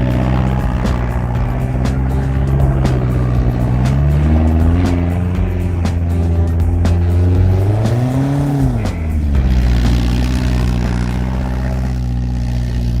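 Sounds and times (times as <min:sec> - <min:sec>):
engine running and revving: 0:00.0 - 0:13.0.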